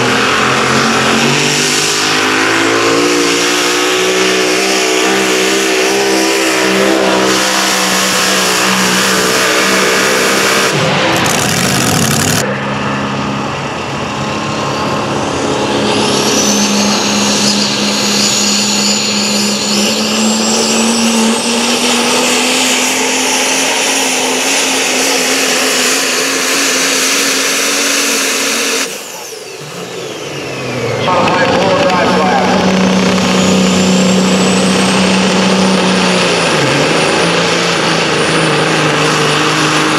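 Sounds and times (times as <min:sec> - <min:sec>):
engines running hard under load: 0:00.0 - 0:39.9
high whistle: 0:15.8 - 0:21.8.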